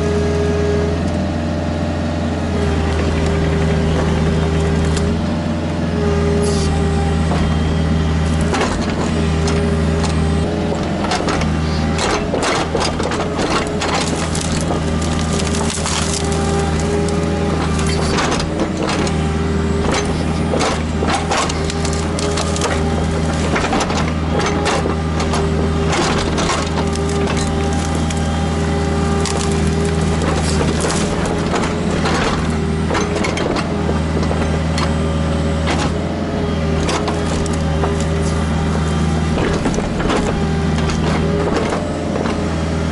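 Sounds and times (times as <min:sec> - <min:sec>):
excavator diesel engine running: 0:00.0 - 0:42.9
wood cracking and snapping: 0:08.2 - 0:34.8, 0:35.6 - 0:42.5.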